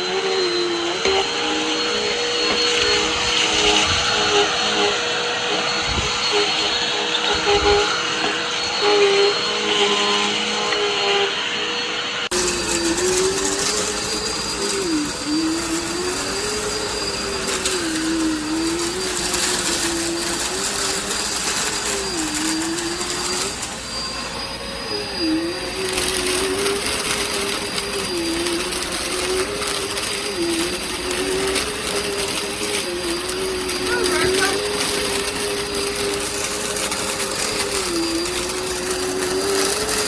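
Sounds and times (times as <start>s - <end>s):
vacuum cleaner running: 0.0s - 40.0s.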